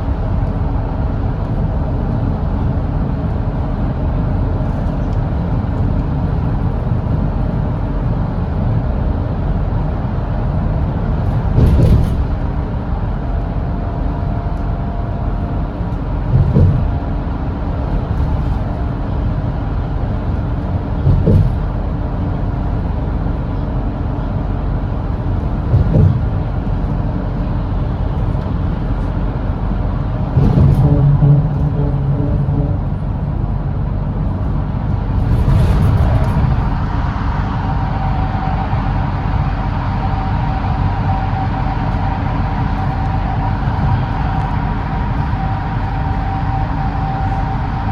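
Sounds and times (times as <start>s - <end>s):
bus diesel engine droning: 0.0s - 47.9s
road noise: 0.0s - 47.9s
brief thump: 11.5s - 12.4s, 16.3s - 16.9s, 21.0s - 21.7s, 25.7s - 26.3s, 30.4s - 31.4s.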